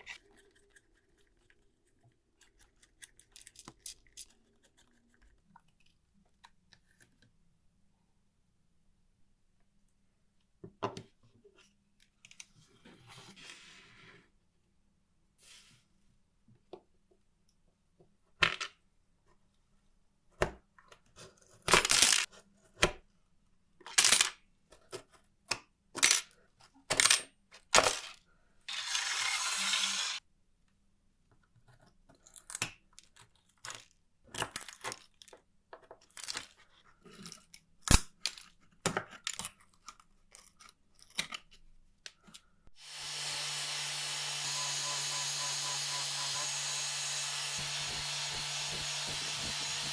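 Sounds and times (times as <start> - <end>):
small power tool motor running: 28.7 - 30.2, 42.8 - 49.9.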